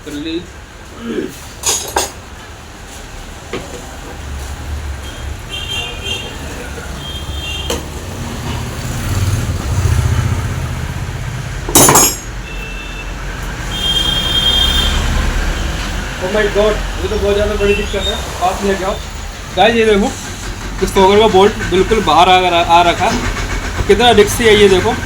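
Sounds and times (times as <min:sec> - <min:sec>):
vehicle rumble: 0:02.6 - 0:12.5.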